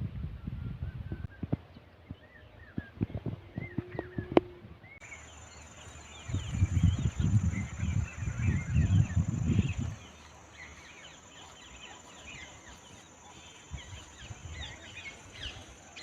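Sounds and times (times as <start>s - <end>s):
small birds chirping: 1.2s - 16.0s
insect drone: 5.0s - 16.0s.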